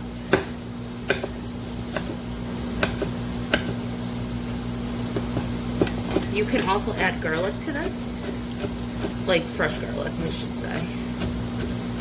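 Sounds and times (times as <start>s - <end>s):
knife chopping on cutting board: 0.3s - 3.8s, 5.2s - 9.3s, 10.7s - 12.0s.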